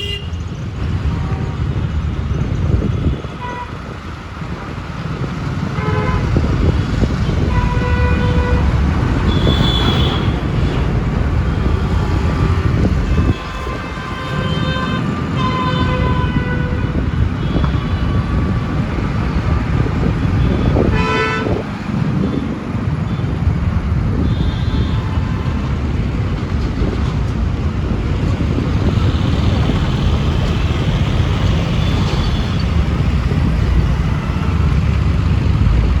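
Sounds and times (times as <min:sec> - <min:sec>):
vehicle horns honking: 0:00.0 - 0:00.4, 0:03.0 - 0:03.9, 0:05.7 - 0:23.4, 0:24.1 - 0:25.4
traffic rumble: 0:00.0 - 0:36.0.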